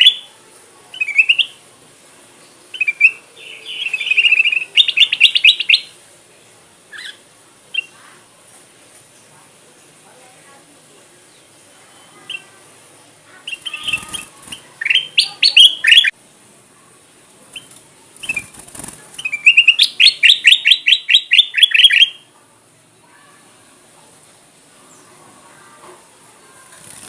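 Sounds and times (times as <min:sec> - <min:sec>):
bird singing: 0:00.9 - 0:01.6, 0:02.4 - 0:06.0, 0:13.4 - 0:16.2, 0:19.2 - 0:22.3.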